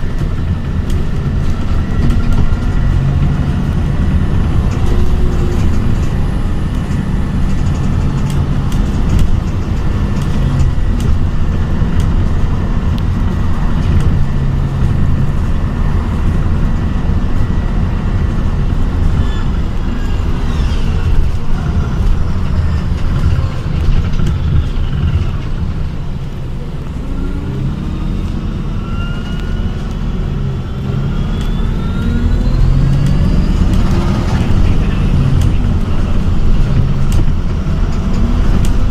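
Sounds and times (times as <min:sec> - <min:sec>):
bus running and road rumble: 0:00.0 - 0:38.9.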